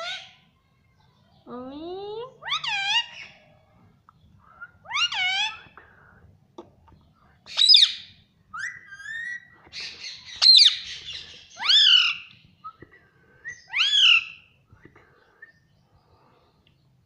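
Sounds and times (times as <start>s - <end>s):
parakeet squawking: 7.5s - 12.2s.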